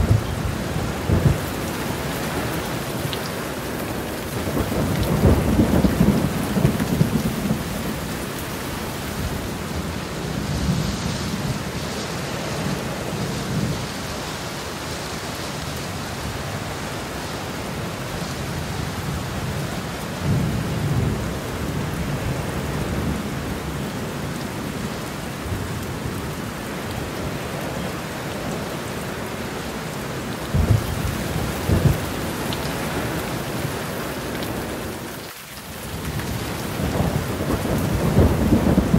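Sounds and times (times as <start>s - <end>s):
thunder rumbling: 0.0s - 11.8s, 30.5s - 35.0s, 36.0s - 38.9s
steady rain falling: 0.0s - 38.9s.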